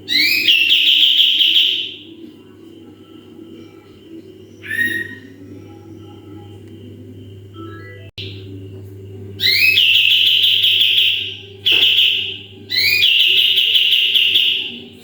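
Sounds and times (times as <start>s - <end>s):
songbird ringing trilled calls: 11.7s - 13.6s.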